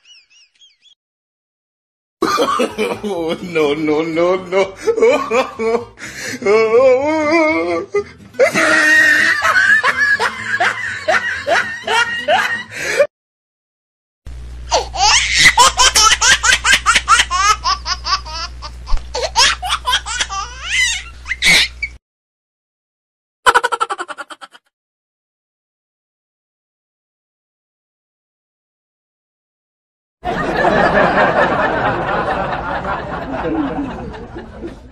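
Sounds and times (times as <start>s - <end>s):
rapid laughter: 8.4s - 13.1s, 14.7s - 21.8s, 23.5s - 24.7s, 30.3s - 34.9s.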